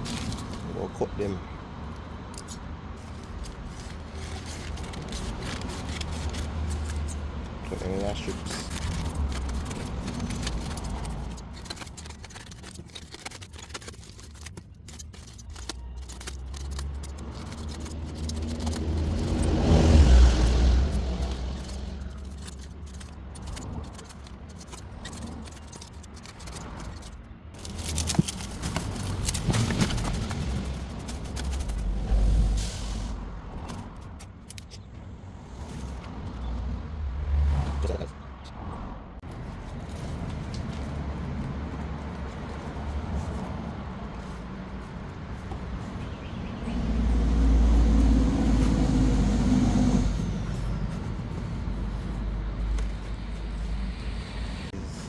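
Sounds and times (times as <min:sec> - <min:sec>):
paper rustling and crackling: 0:00.0 - 0:32.6, 0:33.5 - 0:34.8, 0:39.2 - 0:55.0
vehicle engine rumble passing: 0:15.9 - 0:25.9, 0:26.6 - 0:55.0
steady low rumble: 0:27.4 - 0:37.0.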